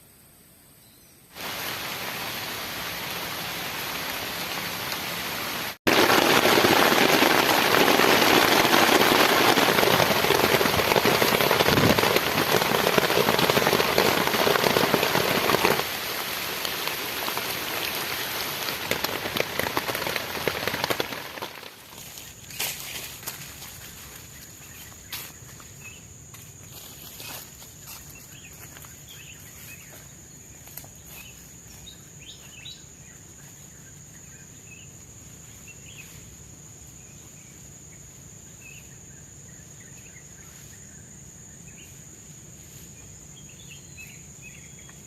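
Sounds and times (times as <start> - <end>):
heavy rain falling: 1.4 - 21.9.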